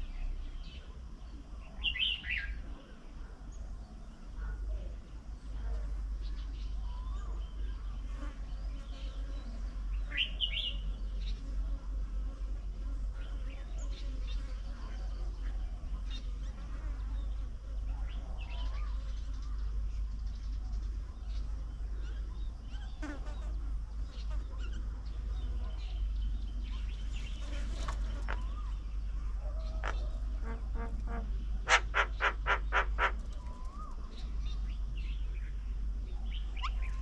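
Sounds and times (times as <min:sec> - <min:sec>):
small birds calling and chirping: 0:00.0 - 0:37.0
steady low rumble: 0:28.0 - 0:37.0.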